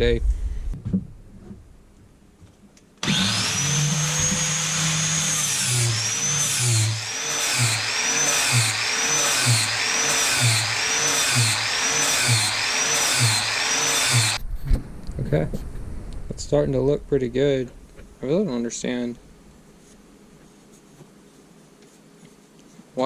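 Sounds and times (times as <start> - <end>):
grinder motor whining: 3.0 - 14.4
grinding metal blade: 3.0 - 14.4.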